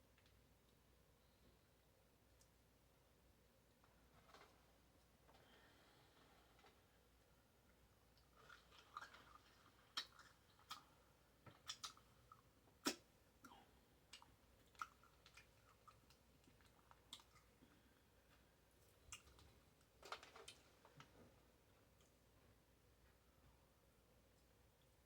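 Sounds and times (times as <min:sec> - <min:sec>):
wet chewing and mouth smacks: 0:08.2 - 0:17.6, 0:19.0 - 0:19.5.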